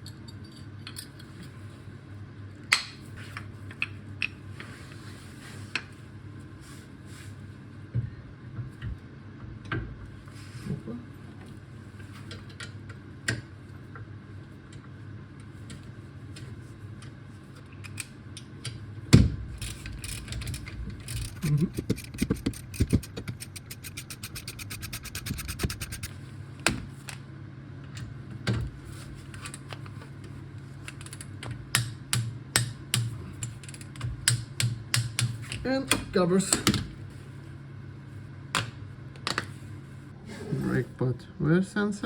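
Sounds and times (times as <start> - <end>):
steady low hum: 19.5 - 26.1
hand tools clicking on metal: 20.0 - 26.1.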